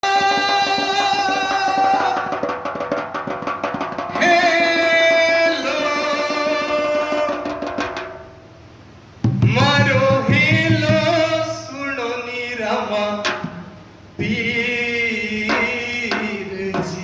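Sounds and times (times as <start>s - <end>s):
fast hand-drum beat: 0.0s - 8.4s, 9.2s - 11.5s, 15.5s - 17.0s.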